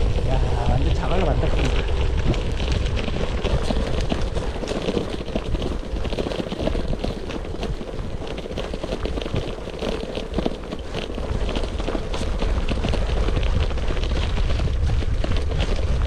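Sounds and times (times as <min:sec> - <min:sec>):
bike rattling: 0:00.0 - 0:16.0
tyres crunching on gravel: 0:00.0 - 0:16.0
wind rumble on microphone: 0:00.0 - 0:16.0.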